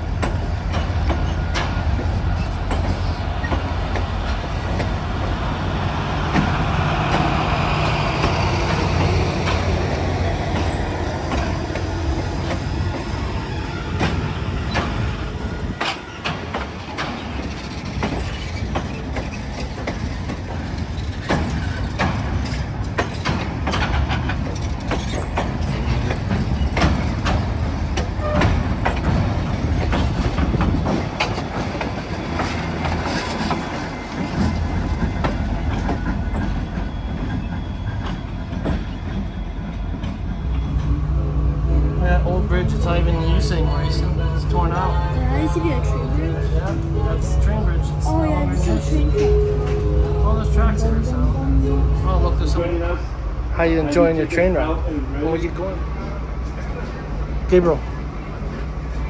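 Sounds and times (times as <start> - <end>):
wheels clicking over rail joints: 0.0 - 5.4, 6.3 - 39.3
train rumble: 0.0 - 59.0.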